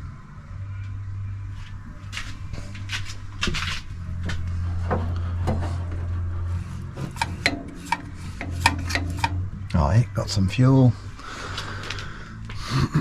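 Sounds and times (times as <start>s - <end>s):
steady low hum: 0.0s - 13.0s
parts knocking and clicking: 7.0s - 9.8s.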